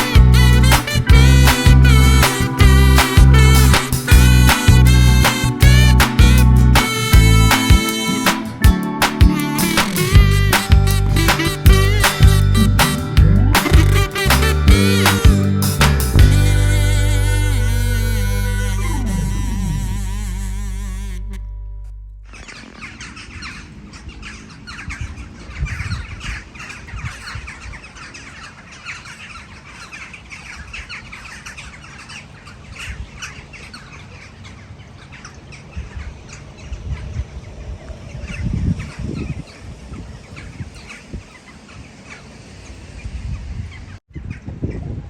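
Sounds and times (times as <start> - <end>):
birds chirping: 0.0 - 21.3, 22.2 - 44.8
low rumbles: 0.0 - 22.6.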